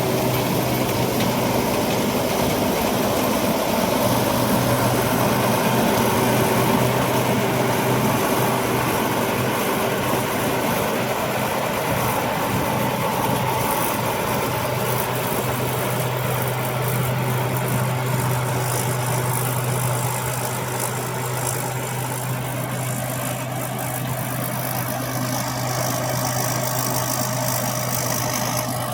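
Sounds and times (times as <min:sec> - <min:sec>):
harvester engine humming: 0:00.0 - 0:28.9.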